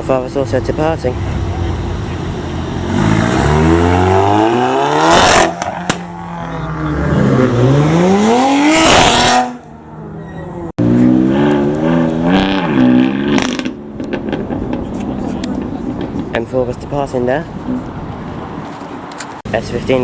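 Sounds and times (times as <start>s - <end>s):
car engines revving hard: 0.0s - 9.8s, 10.5s - 16.4s
sharp crack: 5.0s - 6.2s.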